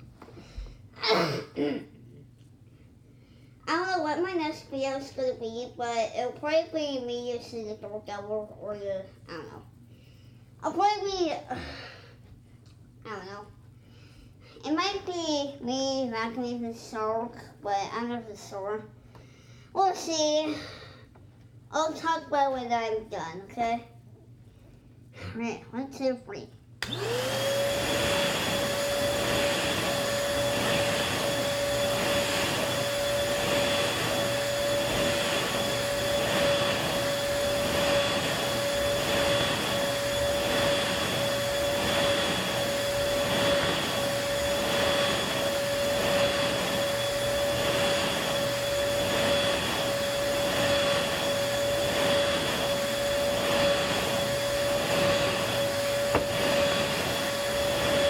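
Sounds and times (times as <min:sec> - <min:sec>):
vacuum cleaner running: 0:26.8 - 0:58.0.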